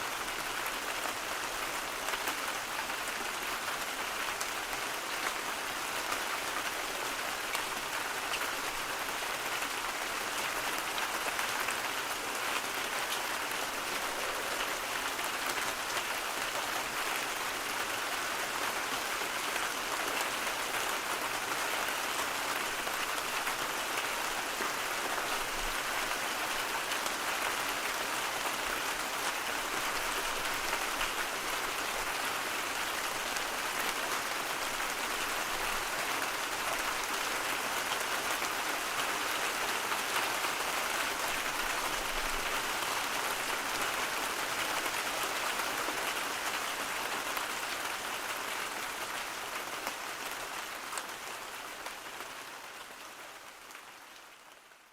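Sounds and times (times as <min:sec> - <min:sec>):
white noise hiss: 0:09.6 - 0:20.4.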